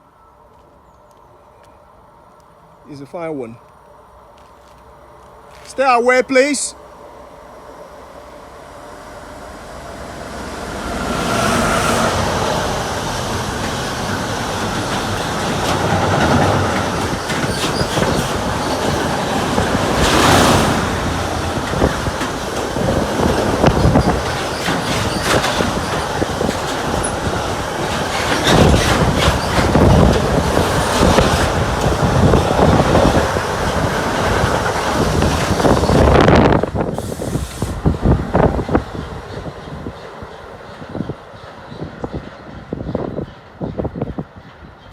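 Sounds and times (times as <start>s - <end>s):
freight train passing: 0.0s - 44.9s
wheels clicking over rail joints: 12.0s - 37.0s.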